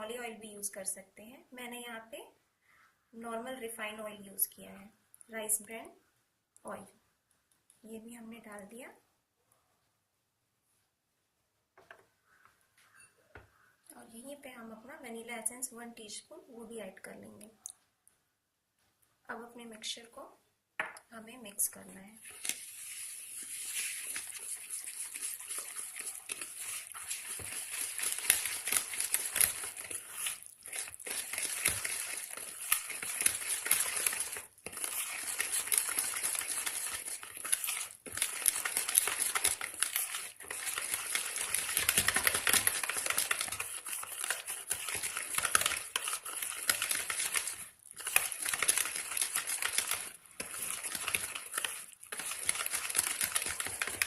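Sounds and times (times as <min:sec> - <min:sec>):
batter stirred in a bowl: 0:21.6 - 0:54.0.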